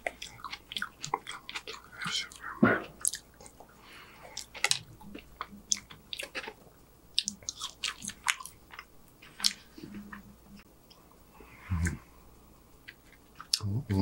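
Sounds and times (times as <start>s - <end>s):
person chewing food: 0.0s - 10.3s.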